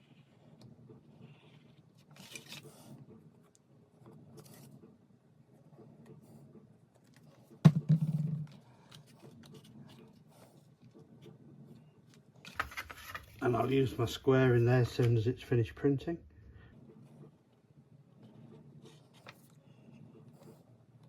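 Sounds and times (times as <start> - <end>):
sharp knock on wood: 7.7 - 8.6.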